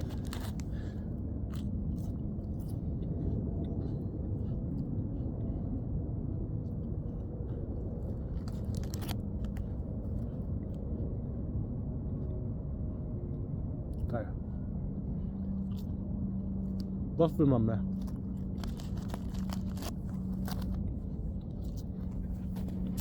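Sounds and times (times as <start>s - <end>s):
crackers being chewed: 0.0s - 6.0s, 6.6s - 10.8s, 15.5s - 16.0s, 17.9s - 23.0s
low outdoor rumble: 0.0s - 23.0s.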